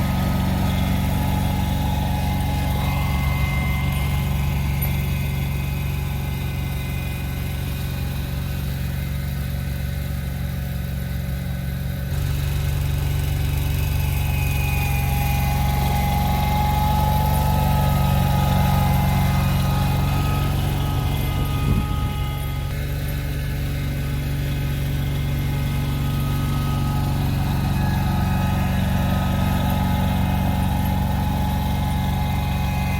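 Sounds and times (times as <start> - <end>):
vehicle engine droning: 0.0 - 32.9.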